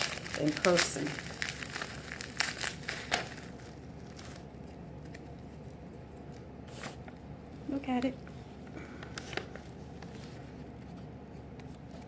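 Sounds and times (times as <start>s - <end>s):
packaging crinkling: 0.0s - 7.3s, 8.5s - 10.8s.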